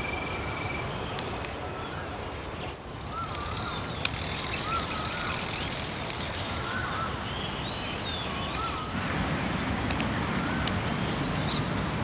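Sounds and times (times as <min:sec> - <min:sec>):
outdoor background noise: 0:00.0 - 0:12.0
bird wavering whistle: 0:03.1 - 0:05.6.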